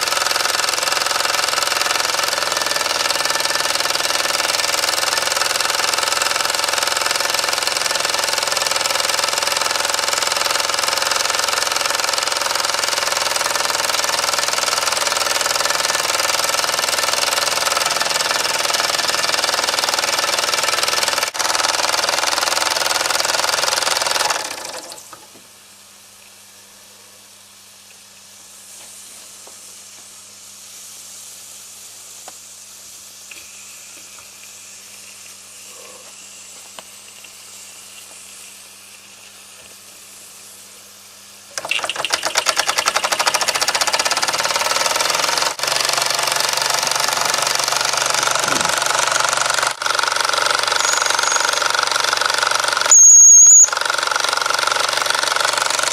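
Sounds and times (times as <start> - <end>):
model steam engine running: 0.0 - 25.2, 29.8 - 55.9
steam hiss: 28.6 - 40.8.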